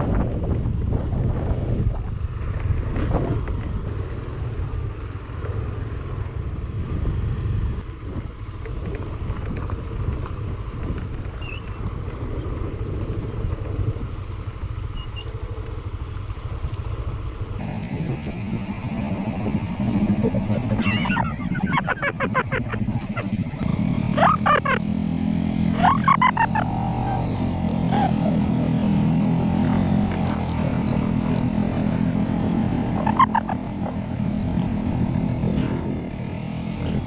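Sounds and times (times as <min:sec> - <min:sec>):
scooter engine rumbling: 0:17.6 - 0:37.0.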